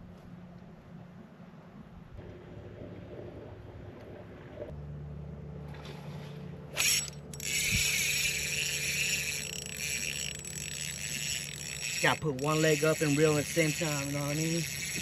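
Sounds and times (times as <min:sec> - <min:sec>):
steady low hum: 0:00.0 - 0:15.0
fishing reel whirring: 0:06.7 - 0:15.0.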